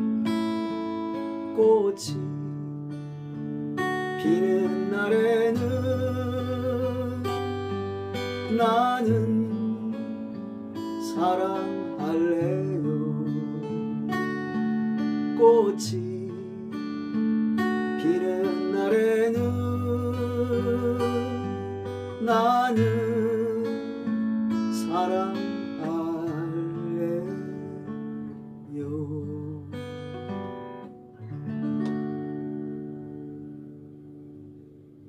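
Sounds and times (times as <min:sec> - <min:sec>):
acoustic guitar strummed and picked: 0:00.0 - 0:35.0
person singing long notes: 0:18.0 - 0:23.7.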